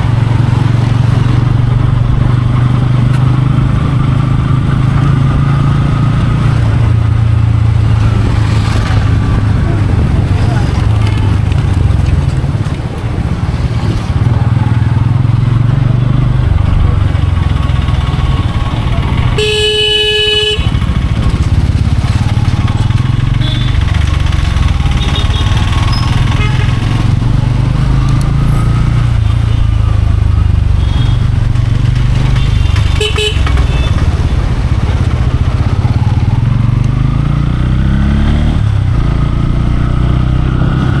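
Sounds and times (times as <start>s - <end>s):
city traffic: 0.0s - 41.0s
motorcycle running: 0.0s - 41.0s
vehicle horn: 19.3s - 21.0s, 23.4s - 23.8s, 24.9s - 26.8s, 30.8s - 31.3s, 32.4s - 34.0s.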